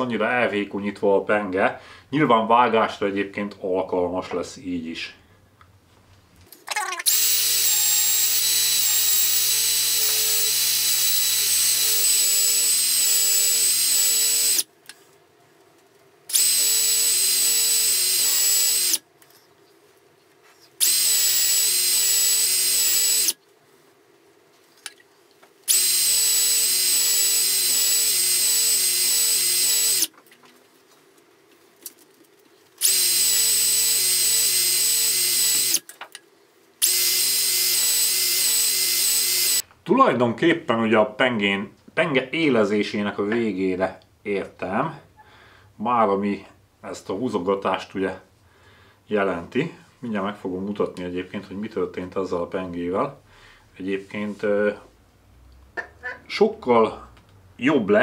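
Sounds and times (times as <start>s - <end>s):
electric drill spinning: 7.0s - 14.7s, 16.3s - 19.0s, 20.8s - 23.4s, 25.7s - 30.1s, 32.8s - 35.9s, 36.8s - 39.6s.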